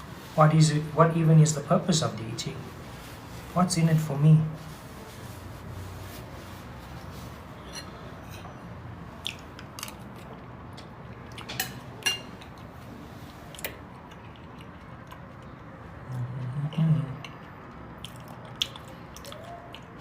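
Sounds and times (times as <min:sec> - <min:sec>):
cutlery clinking against a dish: 0:11.3 - 0:12.6.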